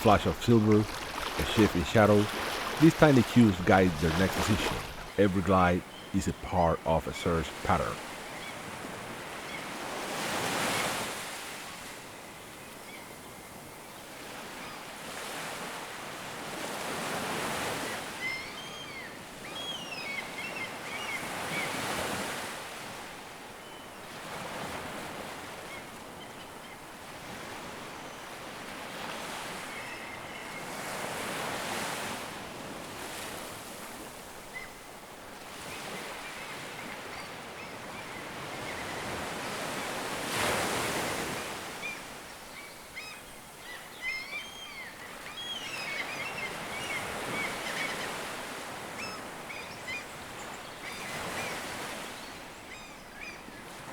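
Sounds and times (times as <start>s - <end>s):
waves breaking: 0.0s - 12.2s, 14.1s - 18.2s, 30.5s - 43.6s
wind: 0.0s - 53.9s.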